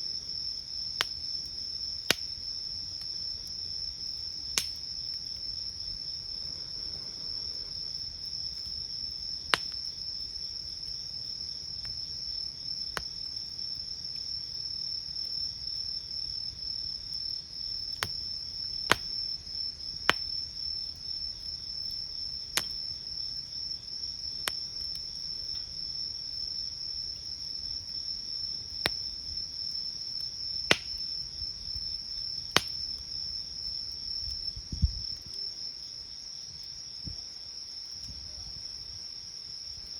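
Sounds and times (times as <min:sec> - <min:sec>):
crickets trilling: 0:00.0 - 0:39.9
campfire popping and crackling: 0:00.9 - 0:14.2, 0:17.7 - 0:26.0, 0:28.4 - 0:35.4.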